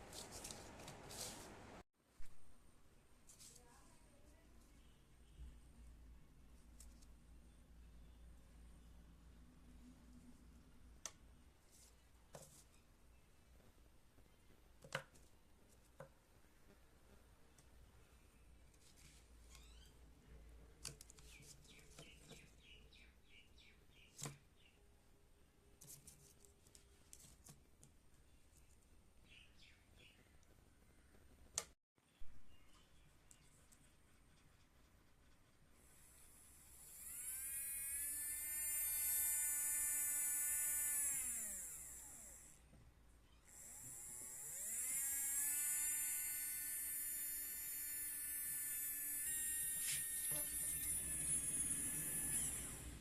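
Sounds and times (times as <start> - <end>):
faint bird chirping: 3.0 - 5.9, 7.3 - 9.4, 19.4 - 20.4, 21.2 - 25.1, 28.2 - 31.3, 32.0 - 35.4
small motor whining: 35.8 - 42.7, 43.3 - 53.0.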